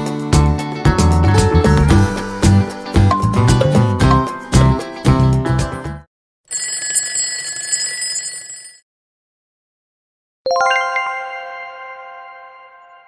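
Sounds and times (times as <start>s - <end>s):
background music: 0.0s - 6.0s, 10.5s - 13.0s.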